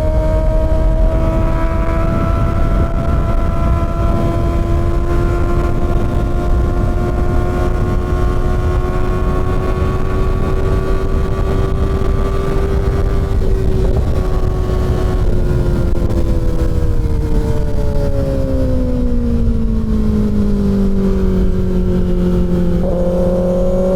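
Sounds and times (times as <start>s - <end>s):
heavy wind rush: 0.0s - 23.9s
motorcycle engine cruising: 0.0s - 23.9s.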